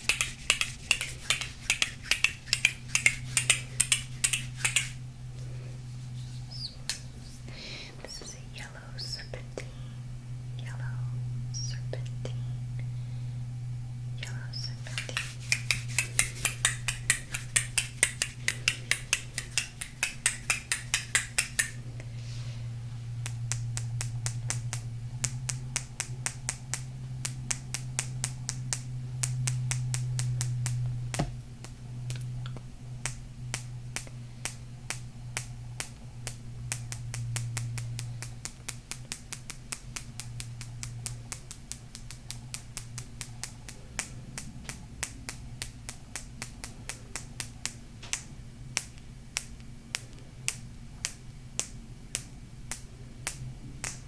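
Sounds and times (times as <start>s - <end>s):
fingernails tapping on stones: 0.0s - 5.0s, 14.8s - 21.8s
steady low hum: 0.0s - 54.0s.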